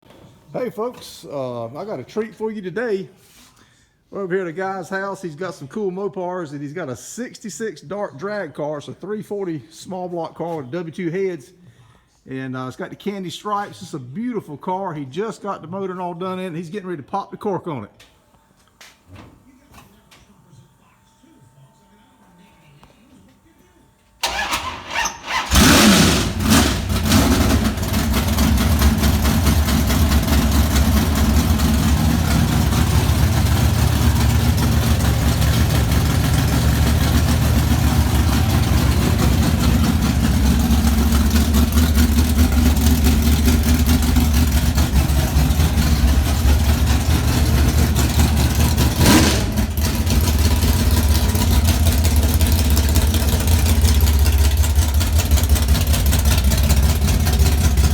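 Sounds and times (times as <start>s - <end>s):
engine revving: 24.2s - 57.9s
engine idling loudly: 25.5s - 57.9s.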